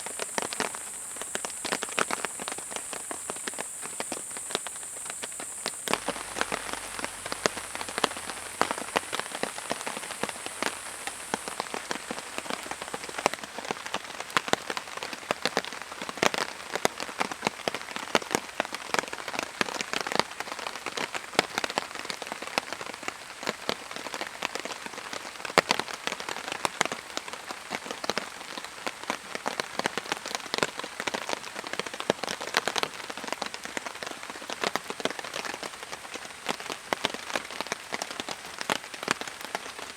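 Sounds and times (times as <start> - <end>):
raindrops hitting a surface: 0.0 - 39.9
steady rain: 0.0 - 39.9
thin high steady tone: 0.1 - 13.4.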